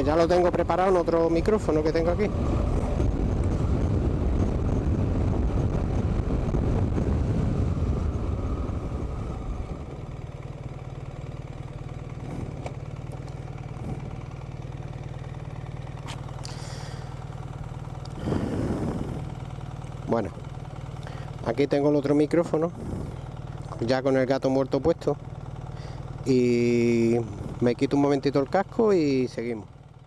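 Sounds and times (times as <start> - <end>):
motorcycle engine rumble: 0.0 - 30.0
wind on microphone: 2.2 - 9.8, 18.2 - 19.4.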